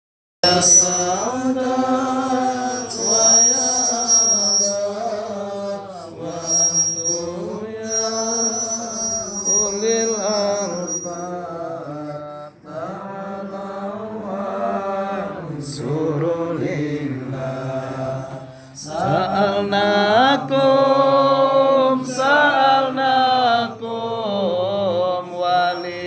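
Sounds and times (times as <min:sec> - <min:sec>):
high-pitched feedback whine: 0:00.4 - 0:12.4, 0:18.8 - 0:26.0
chanting over loudspeakers: 0:00.4 - 0:26.0.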